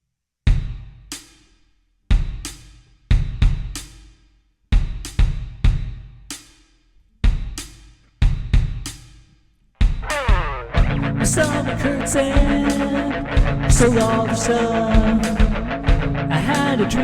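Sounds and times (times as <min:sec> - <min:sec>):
rock drum kit playing: 0:09.8 - 0:17.0.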